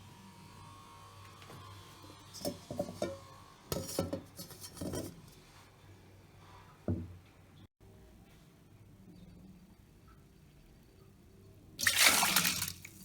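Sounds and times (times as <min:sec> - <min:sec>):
kitchen utensils and dishes clinking: 0:02.3 - 0:05.4.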